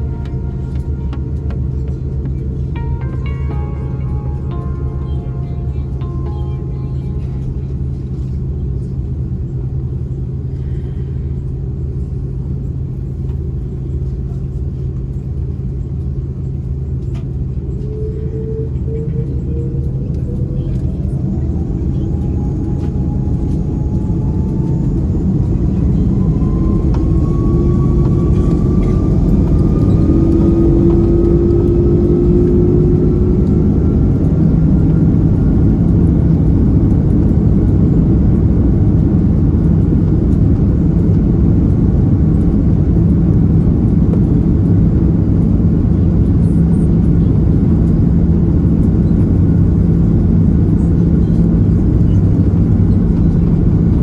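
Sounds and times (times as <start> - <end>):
jet engines spooling up: 17.3 - 54.0.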